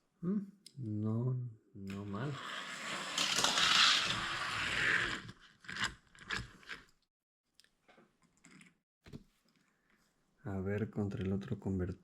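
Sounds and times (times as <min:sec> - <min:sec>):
toy cars clicking on plastic track: 0:02.4 - 0:05.2.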